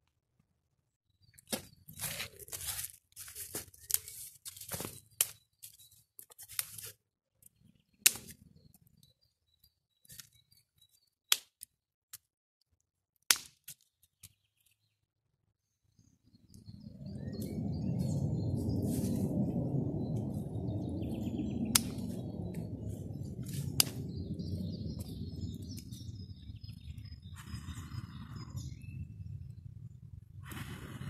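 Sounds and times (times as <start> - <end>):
campfire crackling: 21.1 - 27.6.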